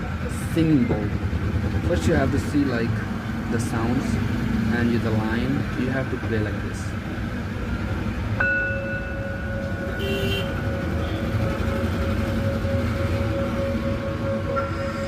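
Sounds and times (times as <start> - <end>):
singing bowl ringing: 8.4 - 15.0.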